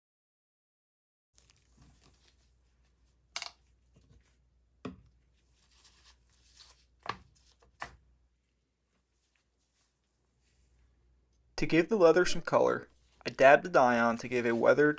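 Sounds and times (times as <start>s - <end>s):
soft rustling: 8.4s - 11.0s, 12.9s - 14.9s.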